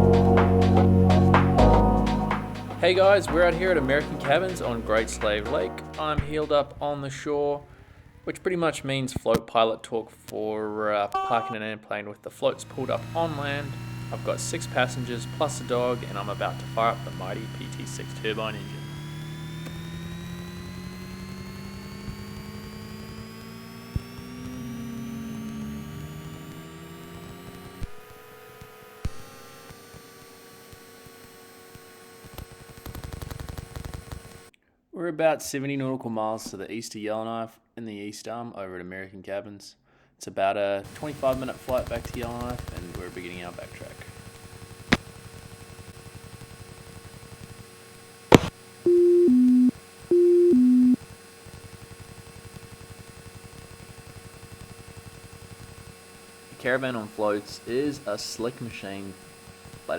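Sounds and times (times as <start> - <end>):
turbine engine starting up: 12.5 - 28.0
sharp click: 48.3 - 48.6
clicks: 48.3 - 51.0
faint low pulsing hum: 48.3 - 51.0
electronic two-tone chime: 48.9 - 51.0.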